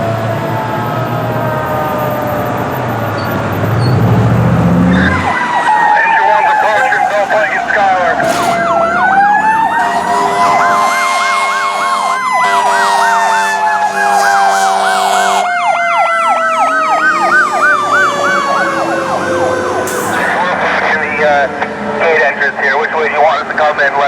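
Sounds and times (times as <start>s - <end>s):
electronic siren yelping: 4.8s - 20.5s
steady horn blast: 4.9s - 20.6s.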